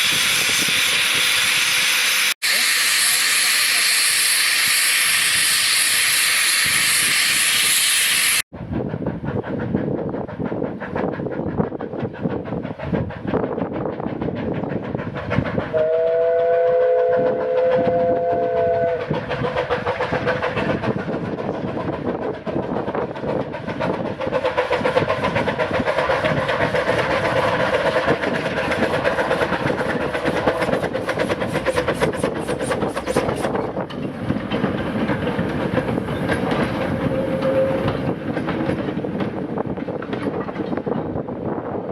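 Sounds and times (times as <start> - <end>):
steam hissing: 0.0 - 8.4, 23.2 - 33.8
steam train clatter: 0.0 - 41.9
steam whistle: 15.7 - 19.1, 37.1 - 37.9.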